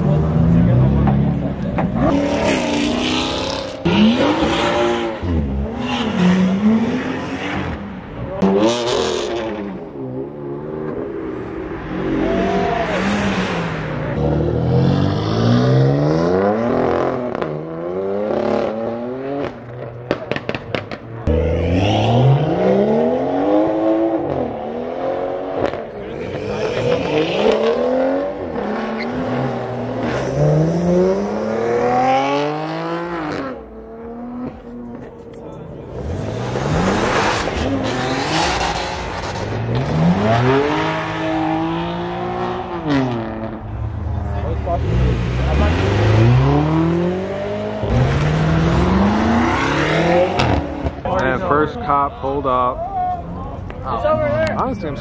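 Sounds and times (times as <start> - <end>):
car engines revving: 0.0 - 55.0
tires squealing: 25.6 - 30.8.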